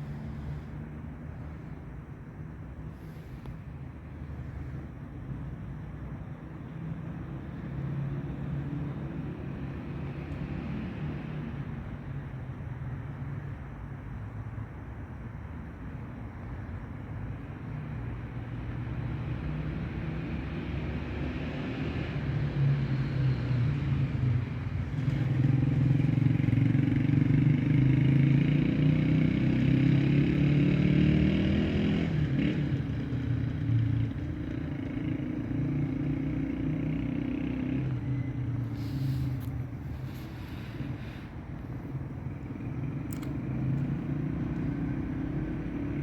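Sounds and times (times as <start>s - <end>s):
motor vehicle engine running: 32.5s - 46.0s.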